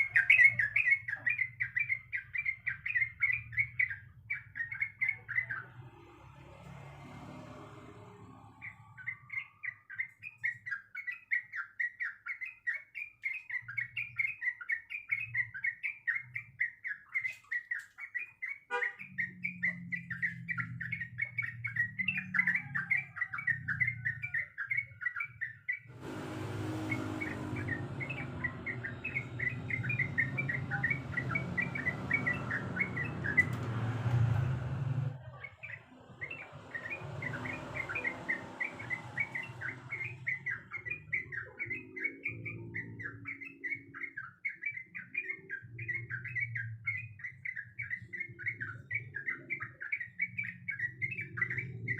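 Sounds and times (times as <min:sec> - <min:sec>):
bulbul chattering song: 0:00.0 - 0:51.9
rushing noise: 0:25.9 - 0:35.1
low hum: 0:25.9 - 0:35.2.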